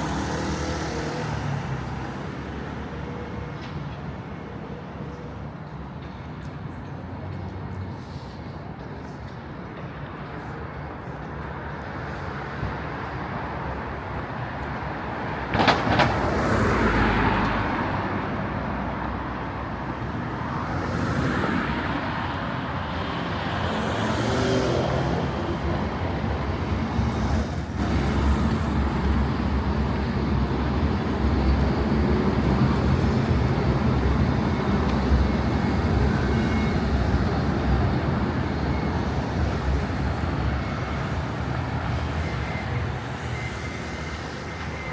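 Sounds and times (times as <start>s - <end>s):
street traffic passing: 0.0s - 44.9s
brief high squeal: 27.1s - 28.0s.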